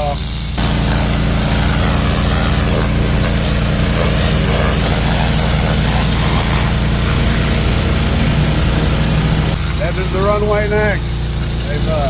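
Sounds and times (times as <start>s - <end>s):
air compressor engine drone: 0.0s - 12.0s
hiss of blast stream: 0.3s - 12.0s.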